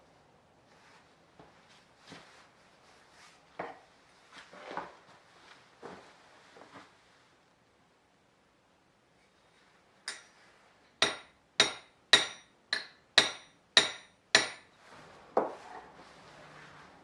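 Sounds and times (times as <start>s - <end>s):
hammer tapping metal blade: 10.1s - 10.4s, 11.0s - 14.7s.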